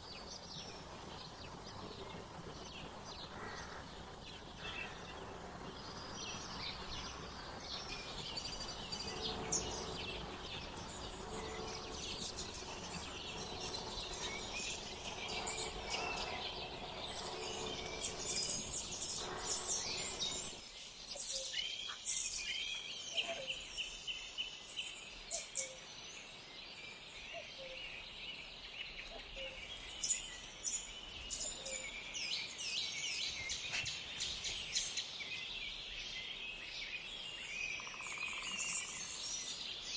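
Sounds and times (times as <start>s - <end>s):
low background rumble: 0.0s - 20.6s
faint steady hum: 0.0s - 21.6s
small birds chirping and singing: 4.0s - 39.9s.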